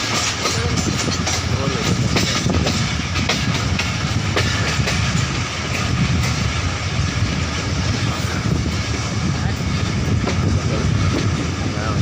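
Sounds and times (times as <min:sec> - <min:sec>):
rail clicks: 0:00.0 - 0:12.0
train wheels rumbling: 0:00.0 - 0:12.0.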